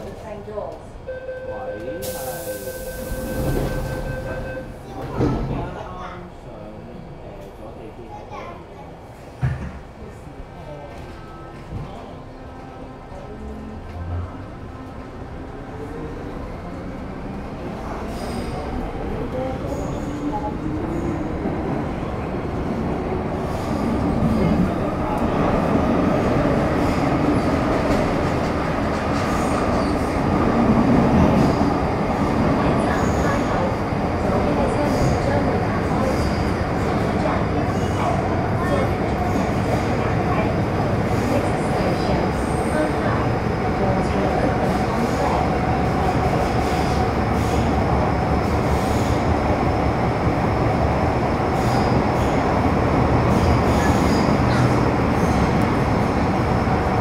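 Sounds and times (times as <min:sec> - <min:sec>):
train wheels rumbling on rail: 0:10.9 - 0:57.0.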